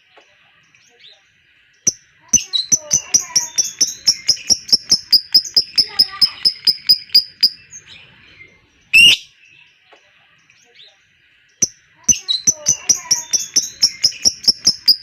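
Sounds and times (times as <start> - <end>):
lovebird chattering song: 1.8 - 9.4, 11.6 - 15.0
loud bird shriek: 9.0 - 9.3.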